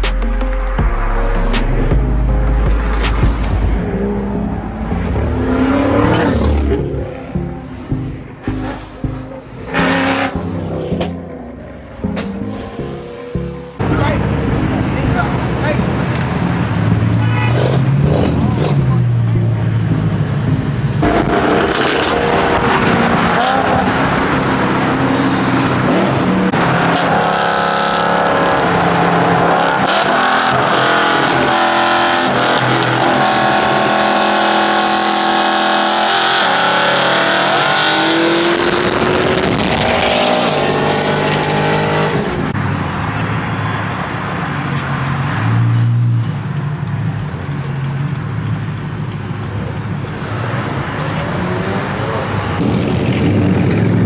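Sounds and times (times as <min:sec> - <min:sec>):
car engines revving: 0:00.8 - 0:54.0
car passing: 0:02.6 - 0:54.0.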